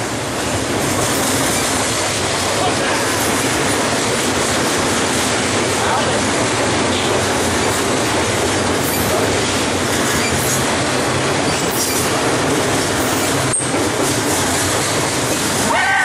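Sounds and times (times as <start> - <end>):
train wheels rumbling on rails: 0.0 - 16.0
high wheel squeals: 10.1 - 10.6.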